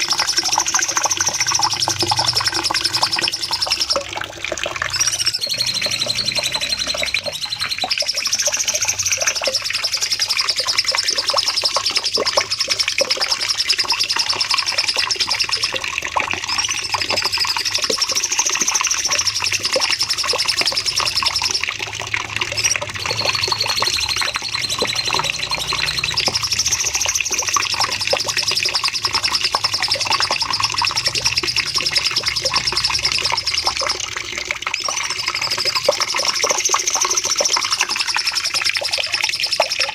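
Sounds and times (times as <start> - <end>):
bird singing fast high trills: 4.8 - 9.4, 22.5 - 34.0.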